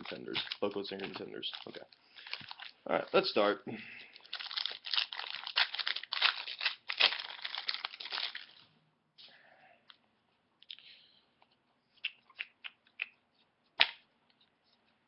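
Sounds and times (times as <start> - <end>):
plastic wrapper tearing and crinkling: 0.0 - 3.2, 4.1 - 8.6.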